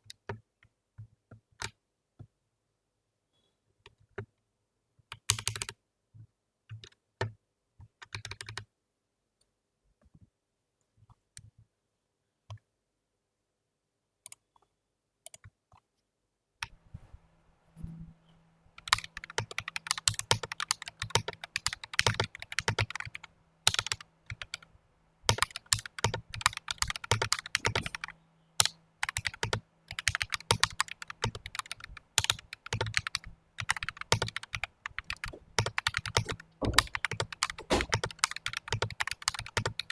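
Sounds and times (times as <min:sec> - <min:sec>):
fast typing on mechanical keyboard: 0:05.3 - 0:05.7, 0:08.0 - 0:08.6, 0:18.8 - 0:24.7, 0:25.3 - 0:39.9
keyboard key clicks: 0:25.3 - 0:39.9.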